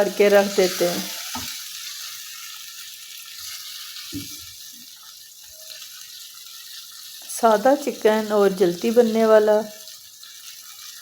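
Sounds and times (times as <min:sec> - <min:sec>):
curry hissing in hot pot: 0:00.0 - 0:11.0.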